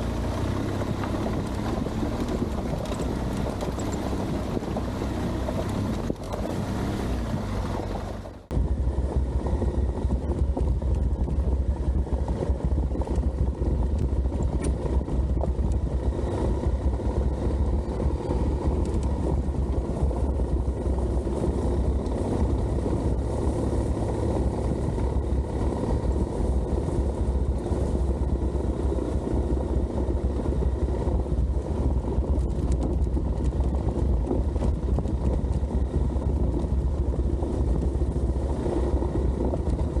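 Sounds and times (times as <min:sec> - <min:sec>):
motorcycle engine droning: 0:00.0 - 0:40.0
wind buffeting microphone: 0:00.0 - 0:40.0.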